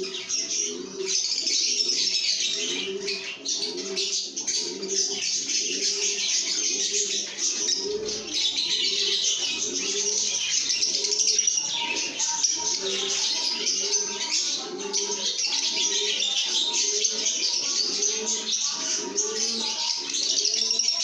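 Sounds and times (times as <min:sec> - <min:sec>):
lovebirds chirping and chattering: 0:00.0 - 0:21.0.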